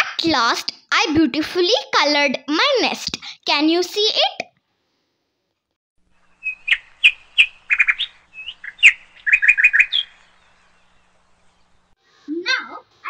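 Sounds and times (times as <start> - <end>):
small bird chirping: 6.1 - 12.4.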